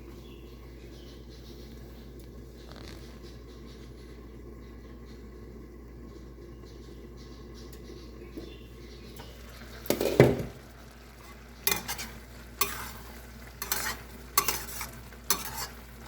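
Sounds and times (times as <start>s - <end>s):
utensil clatter: 9.2s - 16.0s
spoon stirring porridge in pot: 11.1s - 16.0s.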